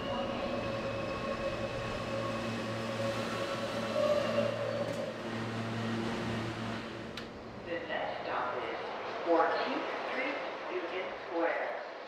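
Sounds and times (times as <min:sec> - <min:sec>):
train motors humming and whining: 0:00.0 - 0:07.7
rumble of moving train cars: 0:00.0 - 0:12.0.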